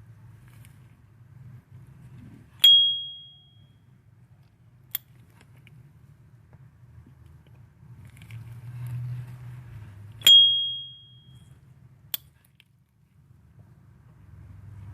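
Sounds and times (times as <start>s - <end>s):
sharp metallic click: 4.9s - 5.2s, 12.1s - 12.7s.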